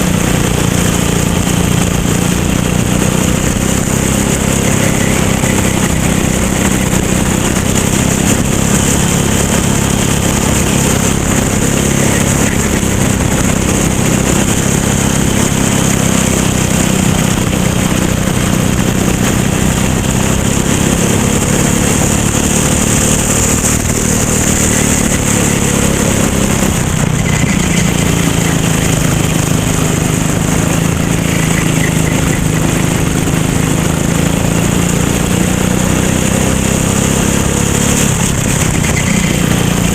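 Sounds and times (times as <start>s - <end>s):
racing kart engine: 0.0s - 39.9s.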